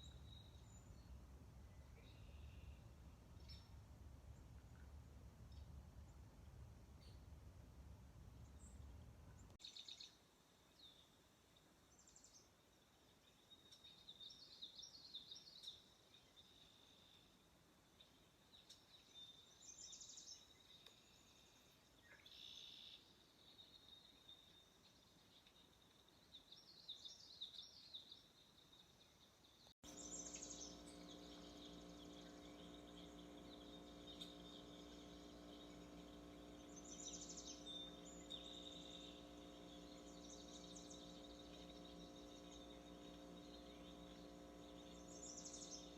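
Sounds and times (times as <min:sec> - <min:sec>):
small birds chirping and twittering: 0:00.0 - 0:06.2, 0:08.4 - 0:45.9
steady low hum: 0:00.0 - 0:09.6, 0:29.8 - 0:45.9.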